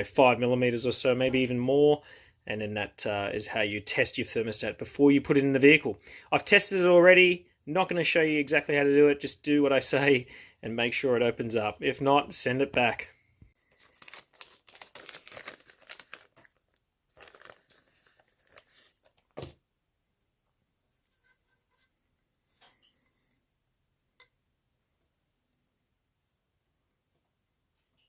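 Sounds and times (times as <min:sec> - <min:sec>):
rustling and crinkling: 0:13.6 - 0:19.6.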